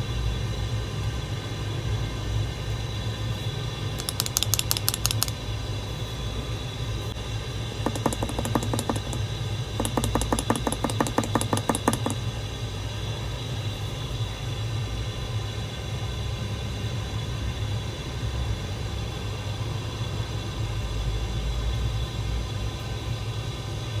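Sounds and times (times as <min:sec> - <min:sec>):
mechanical keyboard typing: 0:04.0 - 0:05.4, 0:07.9 - 0:09.2, 0:09.8 - 0:12.2.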